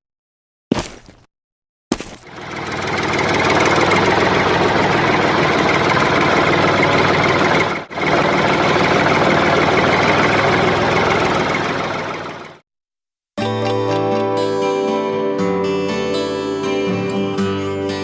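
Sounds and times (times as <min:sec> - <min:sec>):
tractor engine running: 0:01.9 - 0:12.6.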